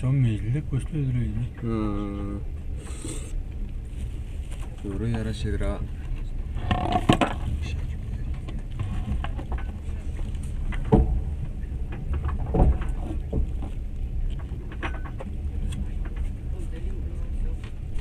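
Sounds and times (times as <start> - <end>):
train carriage rumble: 0.0 - 18.0.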